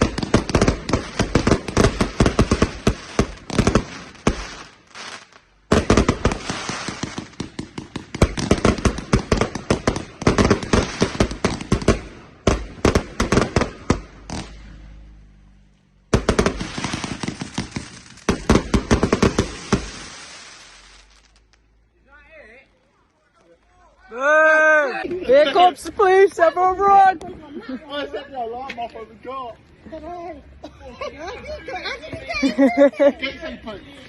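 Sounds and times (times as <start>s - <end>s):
fireworks crackling bangs: 0.0s - 21.8s.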